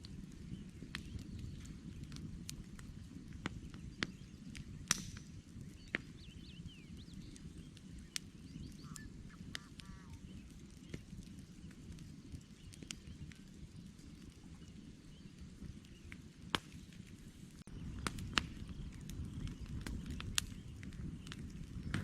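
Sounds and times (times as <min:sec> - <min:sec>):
campfire crackling: 0:00.0 - 0:22.0
birds chirping: 0:00.4 - 0:16.2.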